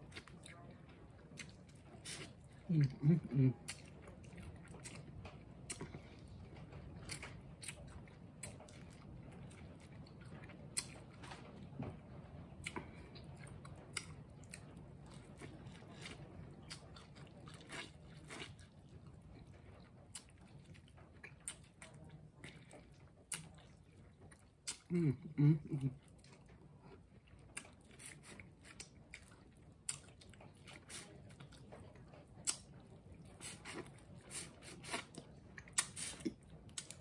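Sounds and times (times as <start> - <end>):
biting and chewing corn: 13.7 - 24.9.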